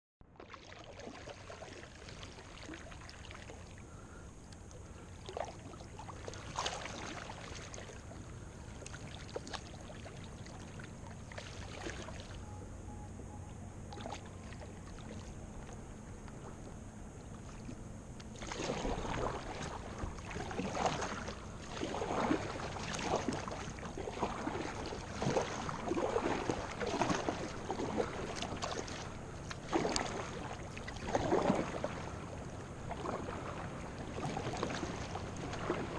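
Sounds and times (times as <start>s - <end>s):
paddle splashing in water: 0.2s - 12.6s, 13.9s - 35.9s.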